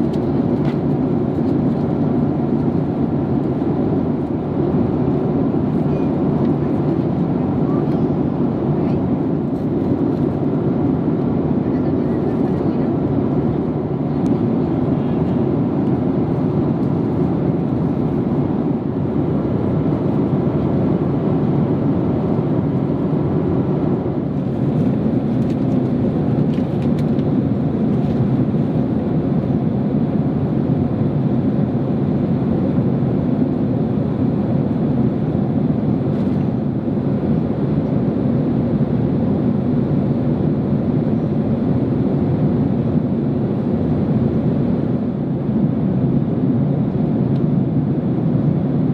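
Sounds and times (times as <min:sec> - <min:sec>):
airliner cabin engine noise: 0:00.0 - 0:48.9.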